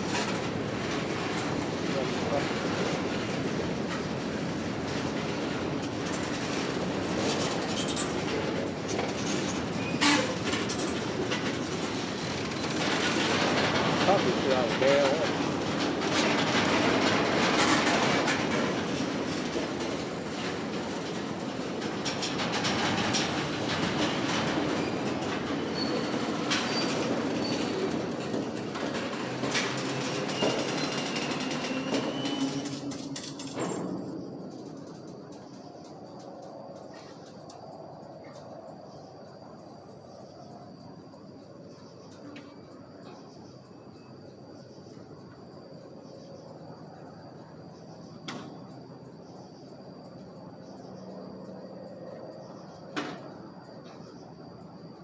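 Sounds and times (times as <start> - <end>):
wheels clicking over rail joints: 0.0 - 45.5
freight train rolling past: 0.0 - 55.0
faint high wheel squeals: 7.2 - 13.2, 23.1 - 37.4.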